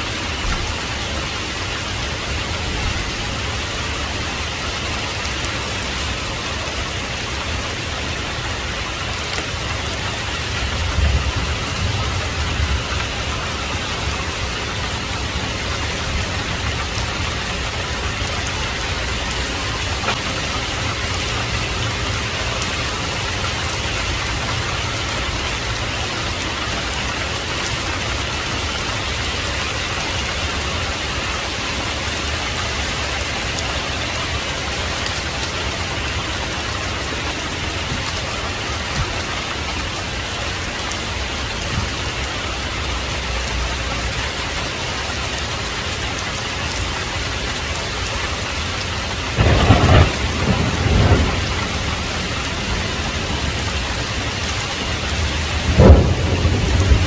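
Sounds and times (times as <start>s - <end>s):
heavy rain falling: 0.0s - 57.0s
faint raindrop ticks: 16.7s - 25.9s.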